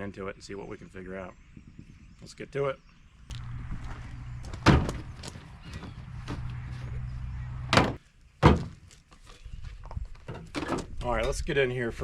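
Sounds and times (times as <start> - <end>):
steady low hum: 3.2 - 8.0
sharp knocks or thuds: 4.5 - 5.4, 7.7 - 8.8.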